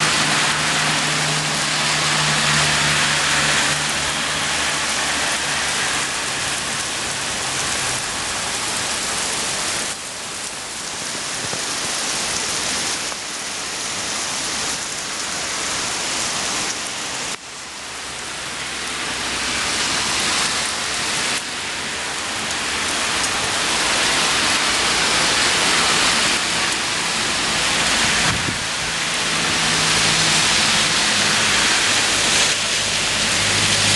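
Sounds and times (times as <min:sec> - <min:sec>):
heavy rain and falling water: 0:00.0 - 0:33.9.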